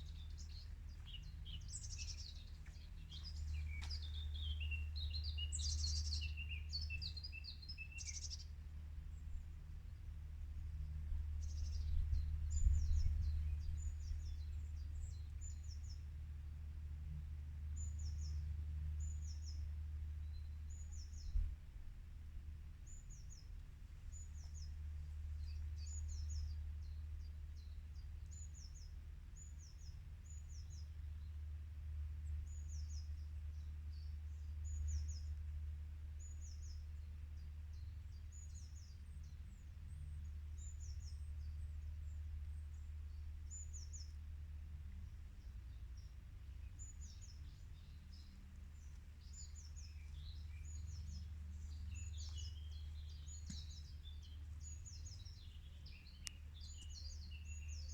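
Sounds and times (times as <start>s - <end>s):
small bird chirping: 0.0s - 8.5s, 46.0s - 57.9s
steady low rumble: 0.0s - 28.4s, 39.5s - 57.9s.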